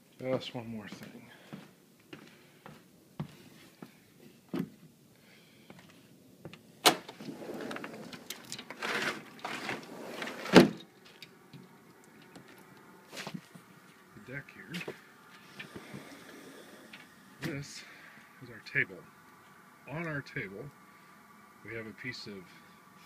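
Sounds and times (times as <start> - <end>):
rushing sliding noise: 7.2 - 10.8, 15.3 - 18.0.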